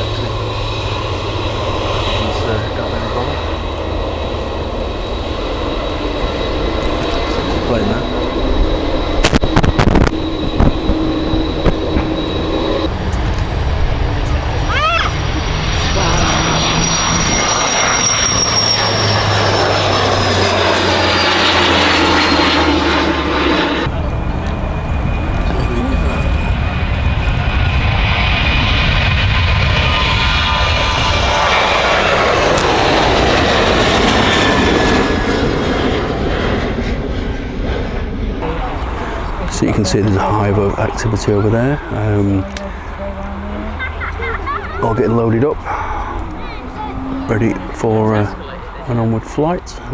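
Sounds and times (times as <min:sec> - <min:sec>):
jet engines whining: 0:00.0 - 0:49.9.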